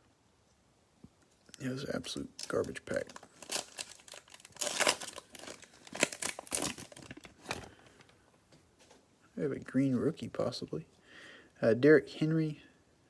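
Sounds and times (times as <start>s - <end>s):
cellophane tearing and crinkling: 1.6s - 7.9s.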